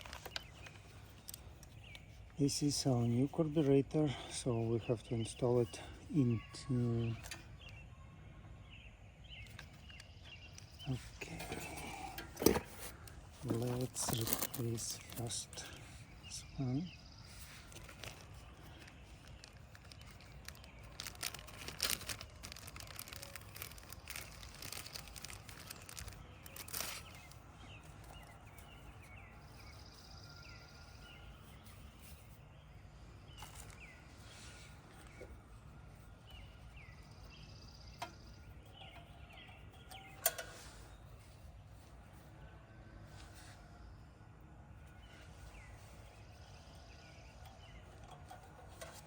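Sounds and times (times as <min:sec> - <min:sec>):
birds chirping: 0:00.0 - 0:49.0
faint outdoor background noise: 0:00.0 - 0:49.0
tools and parts clicking: 0:11.4 - 0:15.8, 0:38.0 - 0:40.8, 0:47.3 - 0:49.0.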